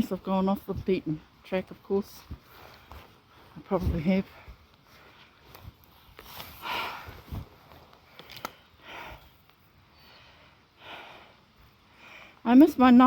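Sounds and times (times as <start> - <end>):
person breathing while walking: 2.2 - 12.4.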